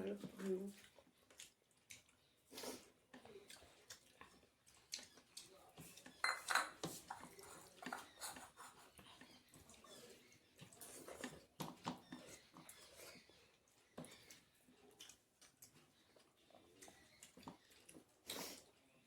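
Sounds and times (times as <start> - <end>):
dishes clinking and scraping: 6.1 - 8.6.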